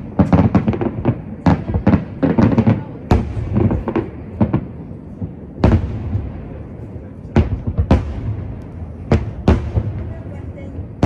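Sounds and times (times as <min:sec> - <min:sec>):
firework shells booming: 0:00.0 - 0:11.0.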